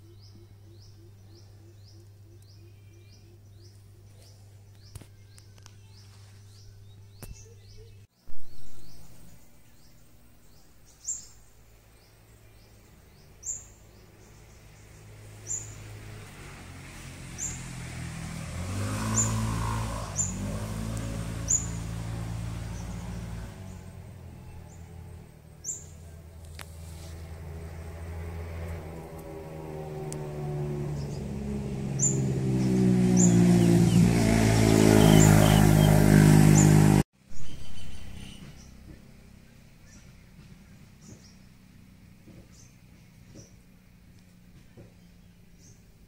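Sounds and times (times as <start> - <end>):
small birds chirping: 0.0 - 16.3, 18.7 - 26.7, 30.8 - 46.0.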